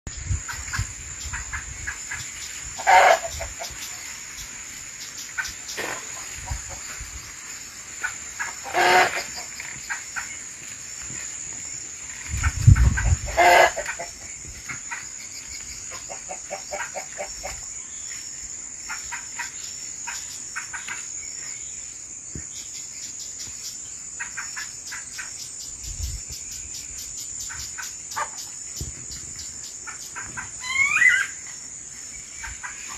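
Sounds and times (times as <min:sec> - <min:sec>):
chickens clucking: 0:00.4 - 0:04.1, 0:05.2 - 0:07.3, 0:07.9 - 0:10.4, 0:12.2 - 0:15.2, 0:15.9 - 0:17.7, 0:29.8 - 0:31.3, 0:32.4 - 0:32.9.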